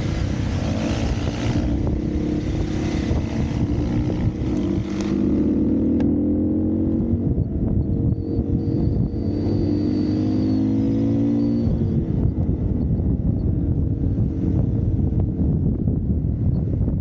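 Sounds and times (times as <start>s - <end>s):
dirt bike engine: 0.0s - 12.4s.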